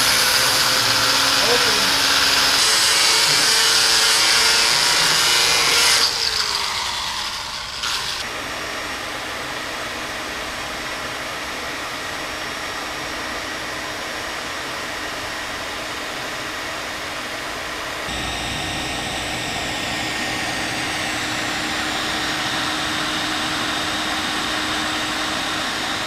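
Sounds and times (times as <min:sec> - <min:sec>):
falling whine of tool: 0:18.0 - 0:26.0
steady low hum: 0:18.1 - 0:26.0.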